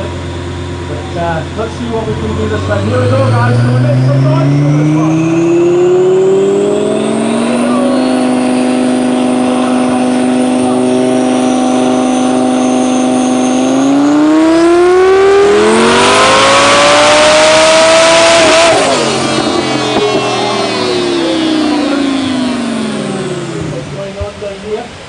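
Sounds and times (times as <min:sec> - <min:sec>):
sports car engine revving: 0:00.0 - 0:25.0.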